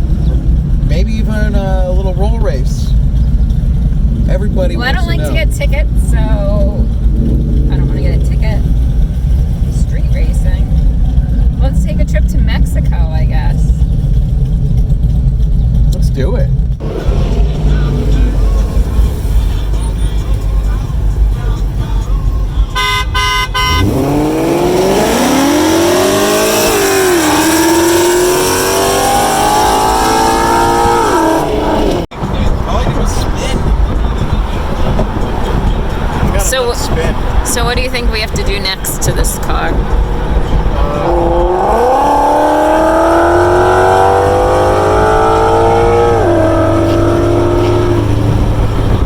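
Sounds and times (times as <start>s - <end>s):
car engine accelerating hard: 0.0s - 49.0s
car horn beeps: 22.6s - 24.2s.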